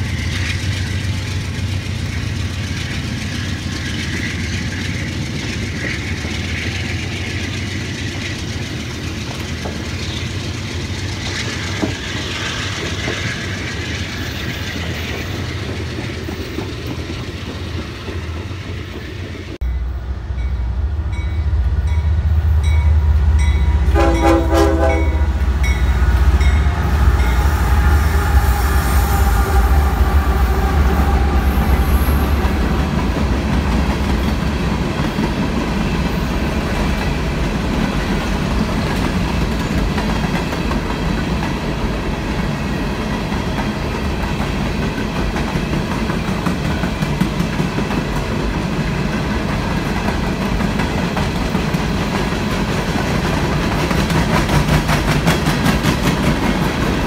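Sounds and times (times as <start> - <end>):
diesel locomotives rumbling: 0.0 - 57.0
train horn: 21.5 - 32.3.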